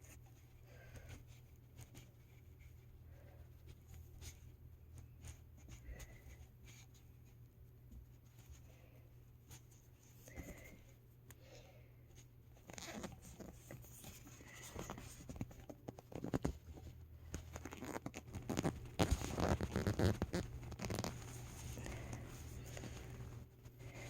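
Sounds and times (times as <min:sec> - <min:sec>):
plastic doll rustling and clicking: 0:12.5 - 0:23.4.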